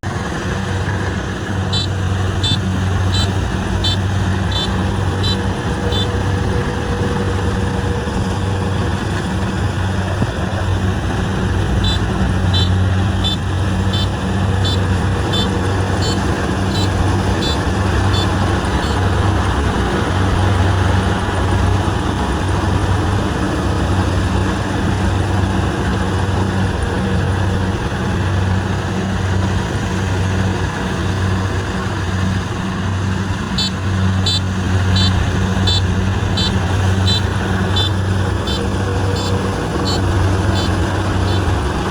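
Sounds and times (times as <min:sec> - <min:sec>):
diesel engine running under load: 0:00.0 - 0:41.9
machinery noise: 0:00.0 - 0:41.9
faint high ticking: 0:11.7 - 0:19.6, 0:33.6 - 0:41.6.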